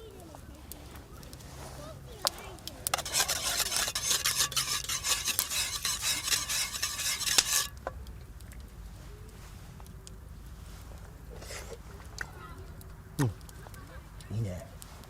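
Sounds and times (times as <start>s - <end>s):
utensil scraping in iron pot: 2.7s - 7.8s.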